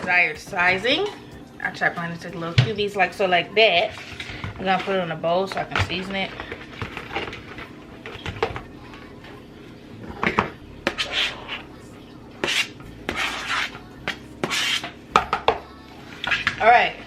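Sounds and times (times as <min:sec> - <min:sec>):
knife scraping cutting board: 0:10.9 - 0:11.6, 0:12.4 - 0:13.8, 0:14.4 - 0:14.9.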